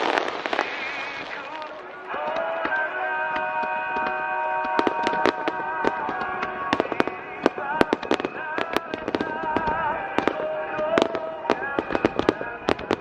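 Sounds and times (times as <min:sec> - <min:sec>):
fireworks cracks and bangs: 0:00.0 - 0:13.0
music playing: 0:00.0 - 0:13.0.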